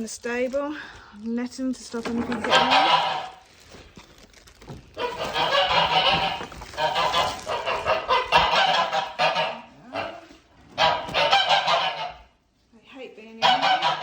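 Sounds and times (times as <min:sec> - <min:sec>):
geese honking loudly: 0:02.4 - 0:03.4, 0:05.0 - 0:12.4, 0:13.4 - 0:14.0.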